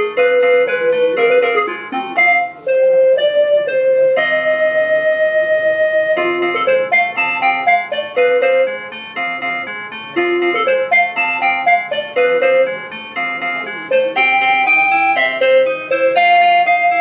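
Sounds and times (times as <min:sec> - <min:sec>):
electronic bell chiming melody: 0:00.0 - 0:17.0.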